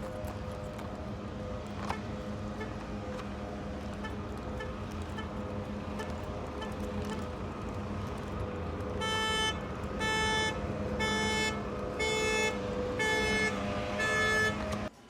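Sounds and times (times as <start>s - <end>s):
car alarm horn honking: 9.0s - 14.9s.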